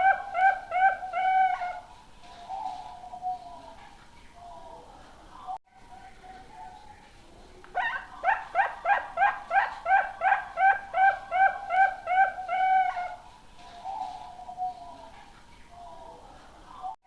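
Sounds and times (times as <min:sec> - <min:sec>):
dove cooing: 0:00.0 - 0:03.8, 0:07.7 - 0:15.2.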